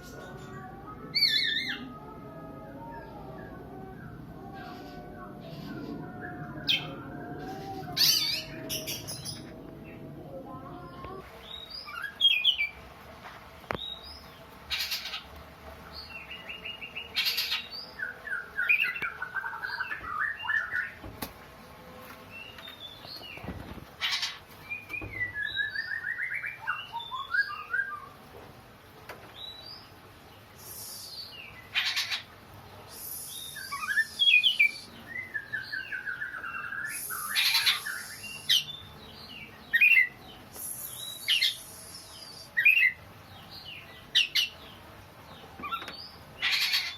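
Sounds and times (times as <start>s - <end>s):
harsh rasping bird calls: 31.7s - 32.3s, 36.9s - 38.8s, 46.4s - 46.9s
bird chirping: 32.9s - 46.9s.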